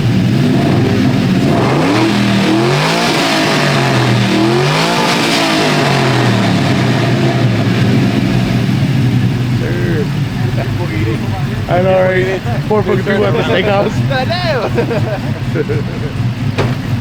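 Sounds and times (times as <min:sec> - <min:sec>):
engine revving and idling: 0:00.0 - 0:17.0.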